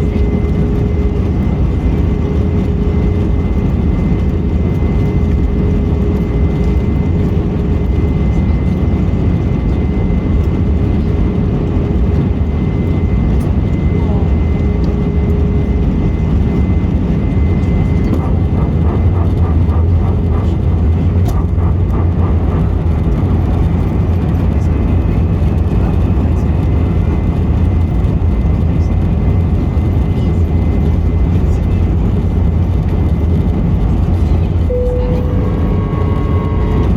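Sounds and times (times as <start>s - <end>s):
airplane cabin rumble: 0.0s - 36.9s
faint voices: 0.0s - 36.9s
thin steady whine: 29.9s - 36.9s.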